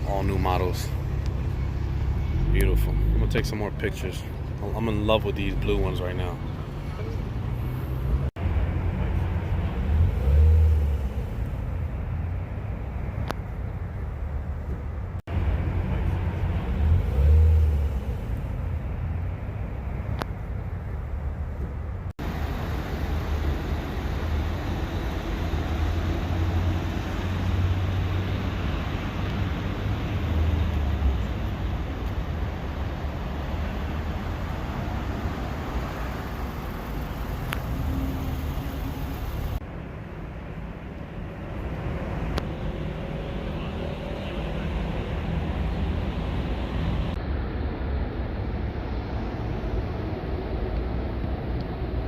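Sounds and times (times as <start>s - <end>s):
traffic engines rumbling: 0.0s - 52.0s.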